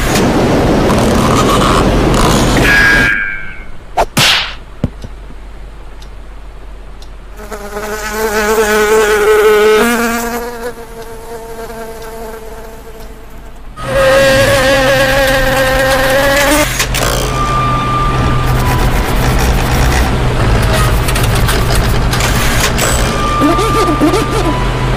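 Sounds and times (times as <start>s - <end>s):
low steady hum: 0.0s - 24.9s
cartoon insect wings buzzing: 7.4s - 16.7s, 23.4s - 24.5s.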